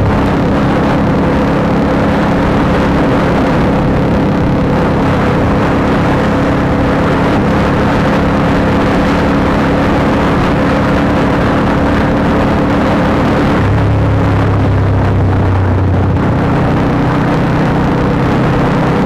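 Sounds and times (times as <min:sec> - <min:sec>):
motorcycle engine running steadily: 0:00.0 - 0:19.0
steady rushing noise: 0:00.0 - 0:19.0.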